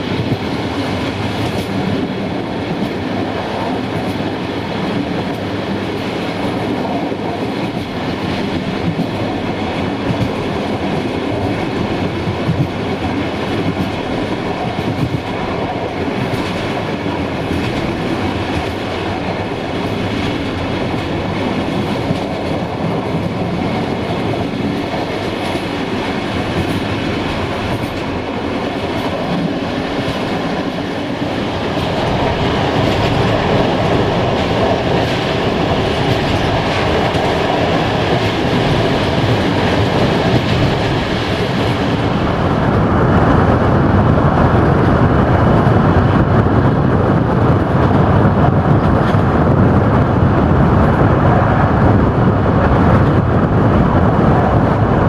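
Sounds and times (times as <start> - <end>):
clacks over rail joints: 0.0 - 42.1
train wheels rumbling on rails: 0.0 - 55.0.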